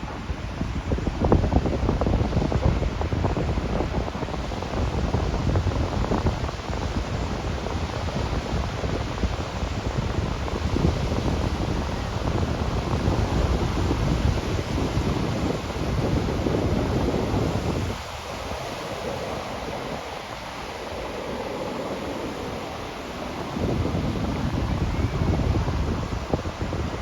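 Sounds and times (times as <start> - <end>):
waves washing onto beach: 0.0 - 27.0
wind buffeting microphone: 0.0 - 27.0.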